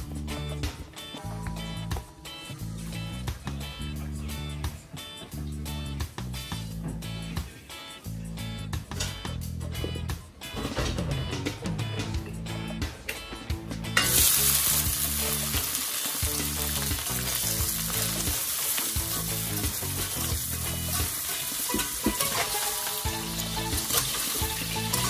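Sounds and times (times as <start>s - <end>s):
soft background music: 0.0s - 25.0s
loud sizzle of frying: 14.0s - 25.0s
vegetables hitting hot oil: 14.0s - 25.0s.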